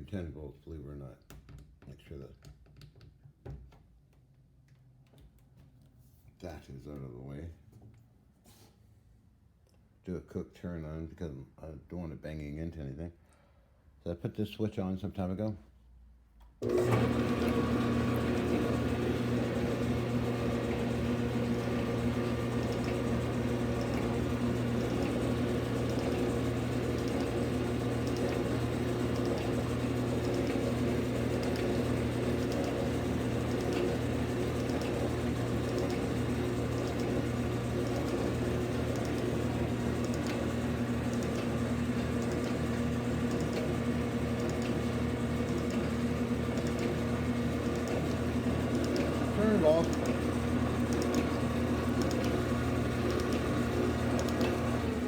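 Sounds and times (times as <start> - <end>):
lathe motor running: 16.6 - 55.0.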